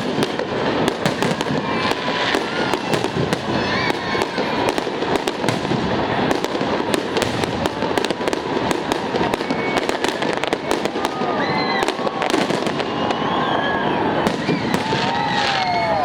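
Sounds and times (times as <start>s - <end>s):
fireworks bangs and crackling: 0.0s - 16.0s
people calling out: 1.2s - 5.2s.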